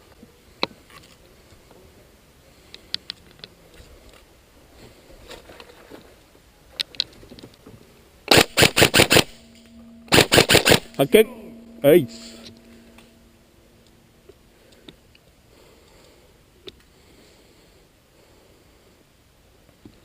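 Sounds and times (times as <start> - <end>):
airsoft gun full-auto fire: 8.3 - 9.4, 10.1 - 10.9.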